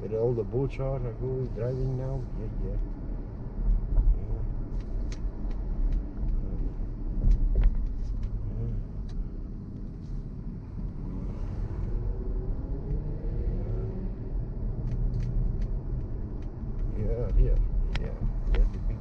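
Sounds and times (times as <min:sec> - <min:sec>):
car engine and tyres rumbling: 0:00.0 - 0:19.0.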